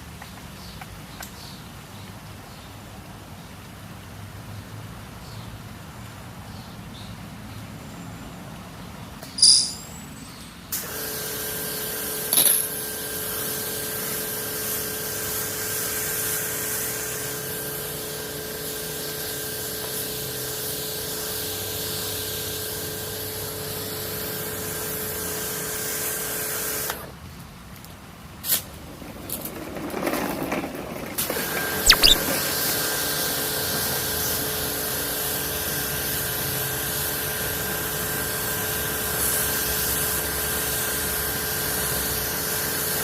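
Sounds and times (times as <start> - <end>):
sharp click: 31.9 - 32.2.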